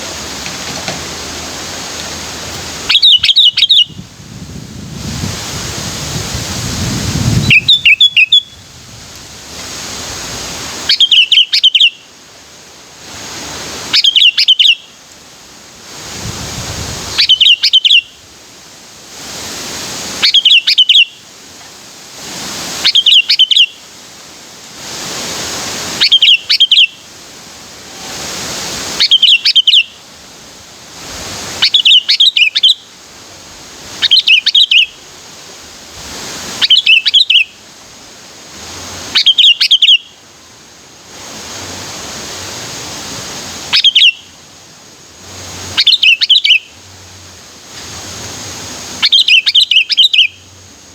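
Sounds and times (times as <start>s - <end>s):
steady hiss: 0.0s - 50.9s
bulbul singing: 2.2s - 4.1s, 7.4s - 8.7s, 10.9s - 12.1s, 14.0s - 14.9s, 17.2s - 18.1s, 22.8s - 23.8s, 26.0s - 27.0s, 29.0s - 30.0s, 31.6s - 32.9s, 34.0s - 35.0s, 36.6s - 37.6s, 39.1s - 40.2s, 43.7s - 44.4s, 45.8s - 46.8s, 49.0s - 50.6s.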